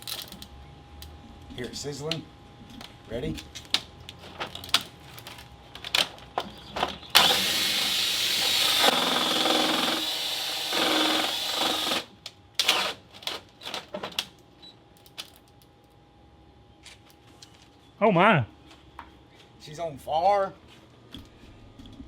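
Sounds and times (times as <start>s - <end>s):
clicks and crackles: 0.0s - 7.1s
cordless drill motor running: 7.1s - 13.0s.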